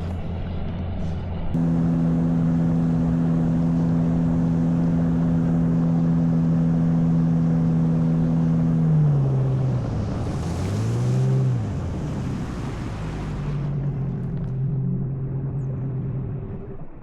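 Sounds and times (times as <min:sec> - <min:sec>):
outboard engine running: 0:00.0 - 0:17.0.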